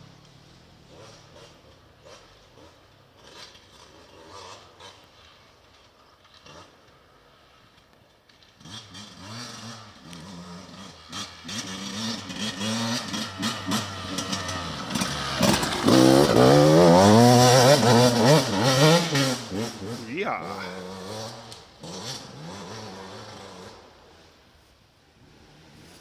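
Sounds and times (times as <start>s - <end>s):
motorcycle engine revving: 8.6s - 24.3s.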